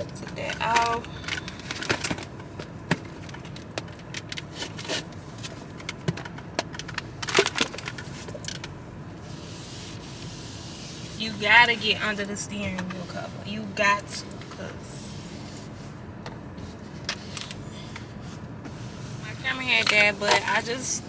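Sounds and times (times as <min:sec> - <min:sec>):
steering wheel cover clicks and creaks: 0:00.0 - 0:08.8, 0:15.4 - 0:18.8.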